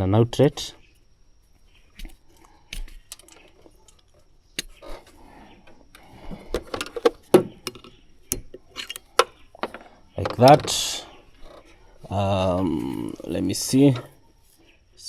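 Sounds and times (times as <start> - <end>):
small plastic and metal parts clicking: 2.0 - 4.9, 5.9 - 10.8.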